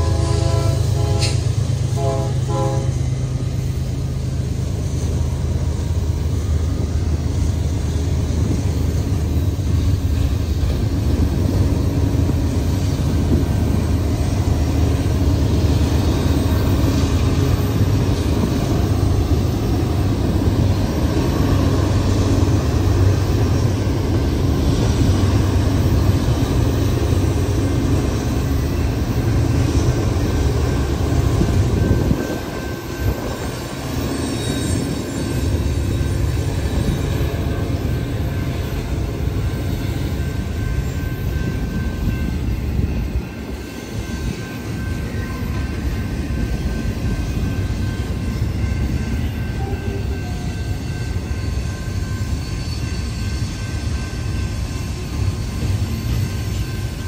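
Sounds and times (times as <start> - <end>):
locomotive chord horn: 0.0 - 3.1
diesel locomotives rumbling: 0.0 - 57.0.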